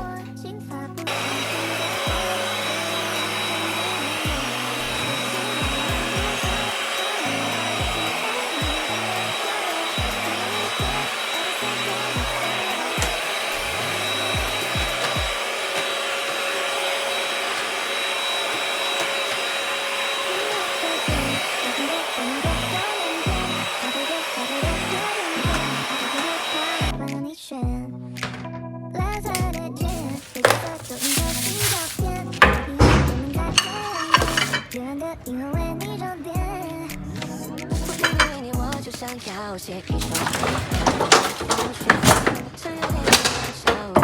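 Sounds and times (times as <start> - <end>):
appliance motor whining: 1.1 - 27.0, 29.8 - 35.4, 37.7 - 44.0
music with bass beat: 32.0 - 32.5.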